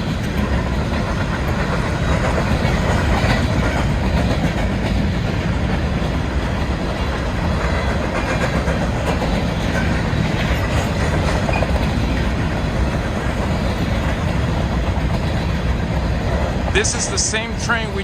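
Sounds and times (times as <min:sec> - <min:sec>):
train wheels rumbling on rail: 0:00.0 - 0:18.0
wheels clacking over rail joints: 0:00.0 - 0:18.0.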